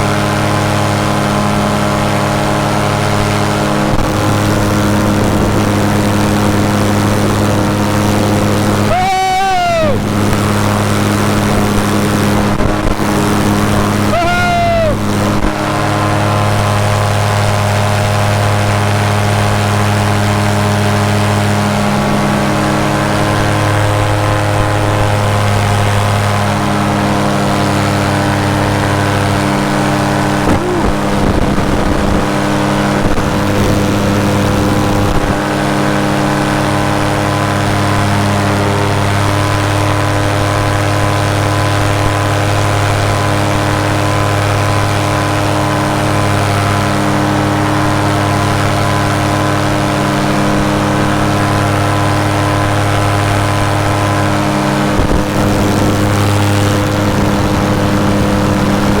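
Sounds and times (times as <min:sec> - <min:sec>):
wind noise on microphone: 0:00.0 - 0:18.7, 0:27.9 - 0:39.4, 0:52.5 - 0:59.0
paramotor engine and propeller: 0:00.0 - 0:59.0.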